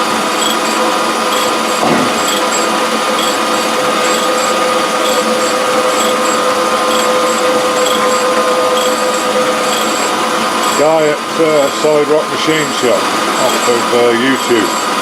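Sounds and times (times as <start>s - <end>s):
grinding wheel whine on metal: 0.0s - 15.0s.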